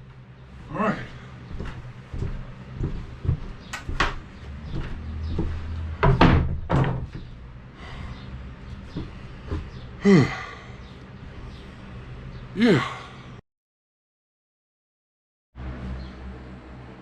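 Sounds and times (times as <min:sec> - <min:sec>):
sharp knocks and bangs: 0:01.6 - 0:07.4.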